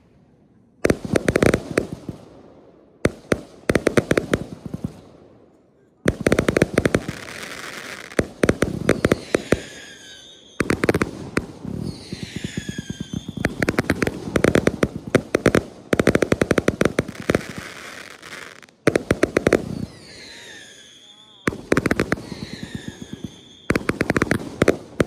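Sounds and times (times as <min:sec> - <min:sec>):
falling firework whistles: 0:08.8 - 0:14.1, 0:19.4 - 0:24.7.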